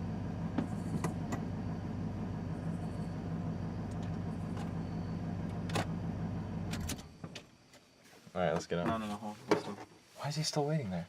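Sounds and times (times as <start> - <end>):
vehicle engine idling: 0.0 - 7.7.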